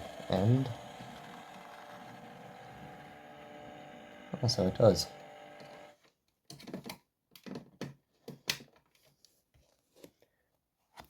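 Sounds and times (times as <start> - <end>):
small electric motor hum: 0.0 - 6.0.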